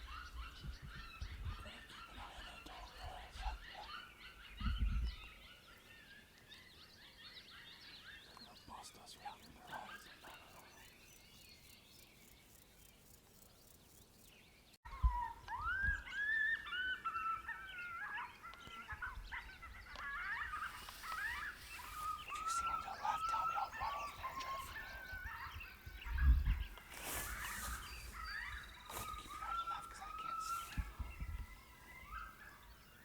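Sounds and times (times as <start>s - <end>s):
coyote yips and howls: 0.0s - 6.3s, 14.9s - 33.0s.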